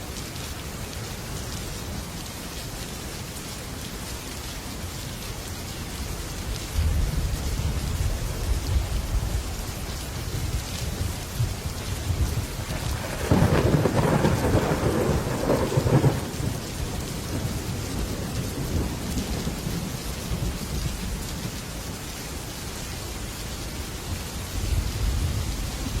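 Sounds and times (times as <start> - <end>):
heavy rain on a metal roof: 0.0 - 26.0
crackling roll of thunder: 6.4 - 21.6, 24.1 - 26.0.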